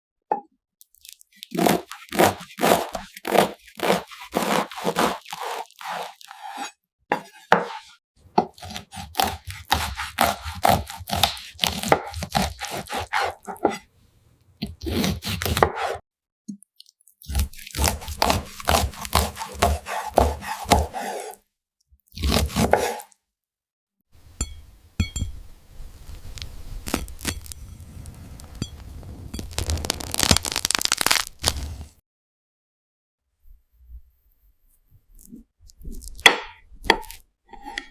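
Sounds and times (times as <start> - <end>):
knife cutting on cutting board: 1.5 - 13.9, 14.6 - 16.0, 17.3 - 21.4, 22.1 - 23.1, 35.2 - 37.9.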